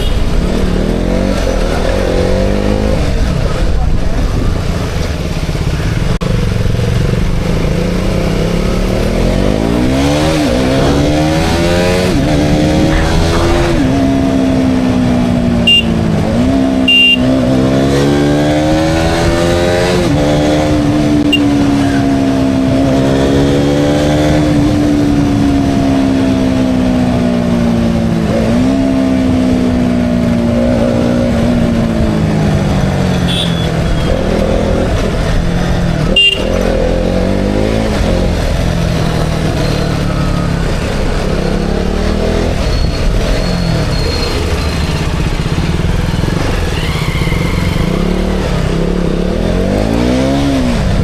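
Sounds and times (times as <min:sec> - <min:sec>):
motorcycle engine accelerating: 0:00.2 - 0:51.0
wind rushing: 0:10.0 - 0:15.0
short high beeps: 0:15.7 - 0:16.0, 0:16.9 - 0:17.3.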